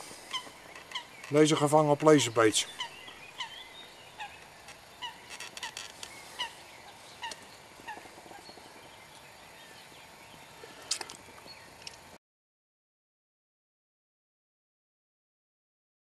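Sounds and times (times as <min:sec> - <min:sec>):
faint steady hiss: 0:00.0 - 0:12.2
bird giving short calls: 0:00.2 - 0:01.4, 0:05.0 - 0:08.4.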